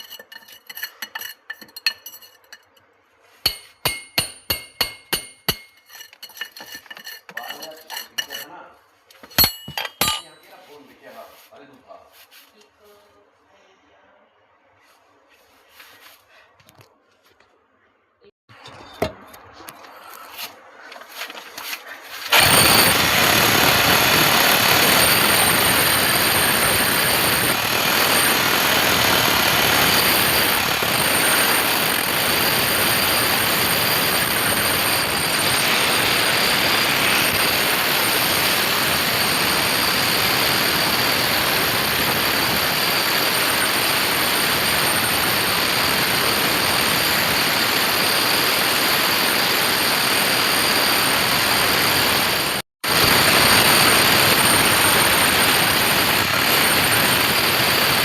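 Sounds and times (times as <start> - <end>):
loud steady machine noise: 22.3 - 58.0.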